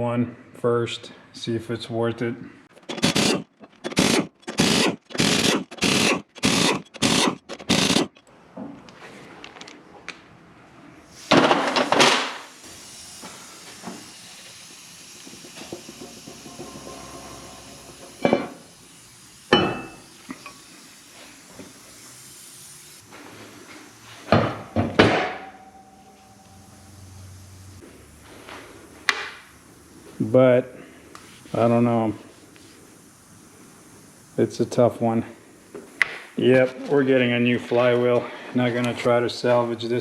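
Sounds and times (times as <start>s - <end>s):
low steady hiss: 16.3s - 40.0s.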